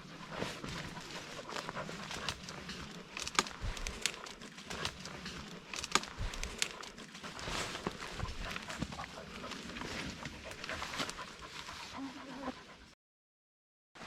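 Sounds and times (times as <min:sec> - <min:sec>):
twigs crackling and snapping: 0:01.0 - 0:09.0.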